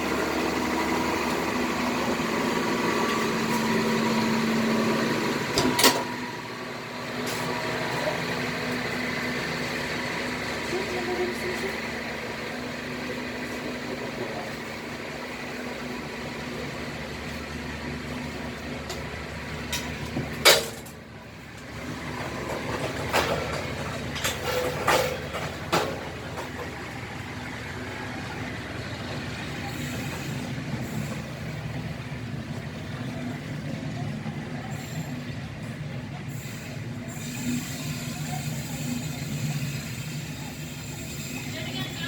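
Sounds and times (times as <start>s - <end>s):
train wheels clacking on rail: 0.0s - 6.4s, 16.5s - 42.0s
train rumbling along track: 0.0s - 42.0s.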